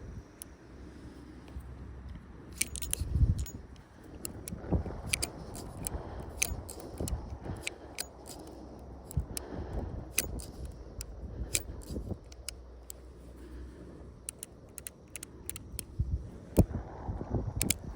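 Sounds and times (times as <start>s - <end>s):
low background rumble: 0.0s - 17.9s
revolver mechanism clicking: 2.1s - 16.7s, 17.6s - 17.9s.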